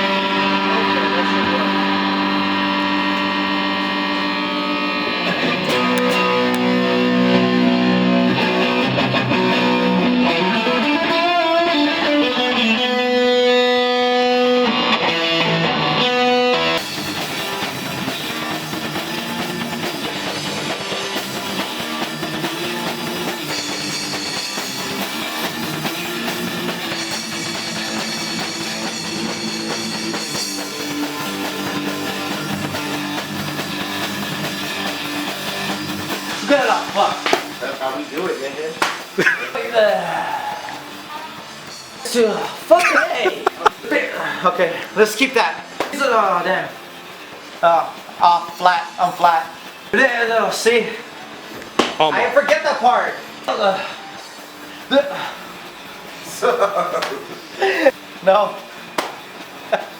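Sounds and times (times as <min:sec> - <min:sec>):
electric guitar rock riff: 0:00.0 - 0:37.6.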